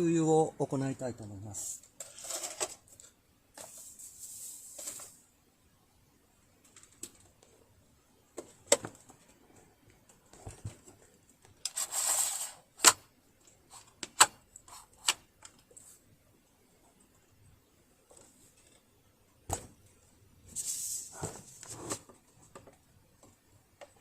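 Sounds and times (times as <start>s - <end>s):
rustling scrape: 1.6s - 2.8s, 3.6s - 5.2s, 11.7s - 12.7s, 20.5s - 22.2s.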